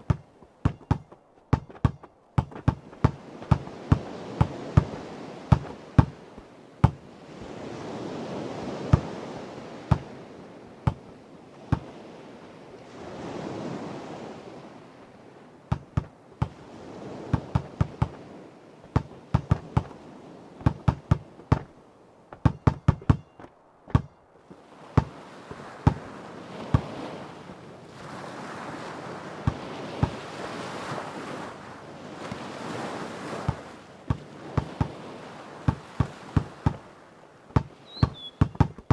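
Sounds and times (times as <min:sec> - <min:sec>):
basketball bouncing on hard ground: 0:00.0 - 0:06.2, 0:06.8 - 0:07.0, 0:08.9 - 0:09.2, 0:09.9 - 0:10.1, 0:10.9 - 0:11.1, 0:11.7 - 0:11.9, 0:15.7 - 0:16.6, 0:17.3 - 0:18.2, 0:18.8 - 0:19.9, 0:20.6 - 0:21.7, 0:22.3 - 0:24.2, 0:25.0 - 0:25.2, 0:25.8 - 0:26.0, 0:26.7 - 0:27.0, 0:29.4 - 0:30.2, 0:33.5 - 0:35.0, 0:35.7 - 0:36.8, 0:37.5 - 0:38.9
sea waves washing in: 0:00.0 - 0:38.9.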